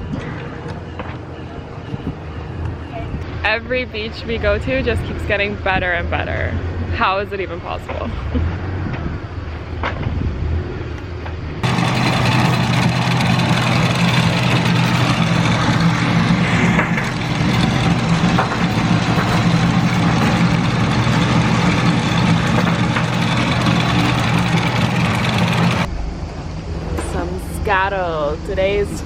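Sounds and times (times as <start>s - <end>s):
wind: 0.0s - 29.0s
boat engine running: 11.6s - 26.0s.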